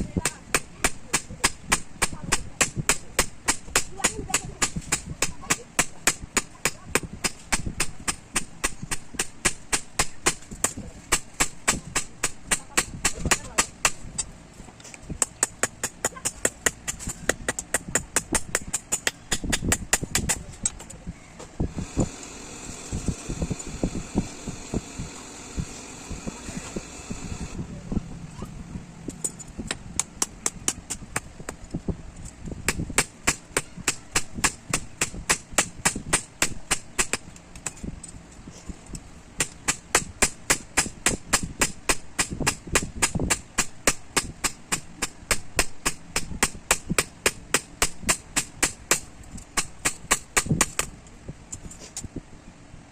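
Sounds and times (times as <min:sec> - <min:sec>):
steady high hiss: 0:21.5 - 0:29.6.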